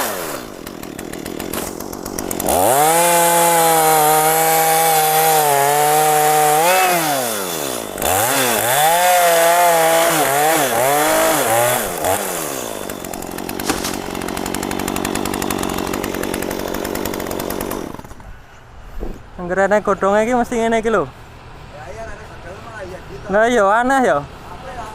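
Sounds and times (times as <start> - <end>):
chainsaw cutting wood: 0.0 - 18.3.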